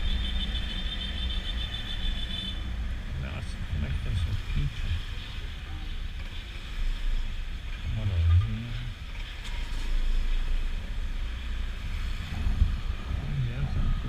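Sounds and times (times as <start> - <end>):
wind rush on microphone: 10.0 - 14.0.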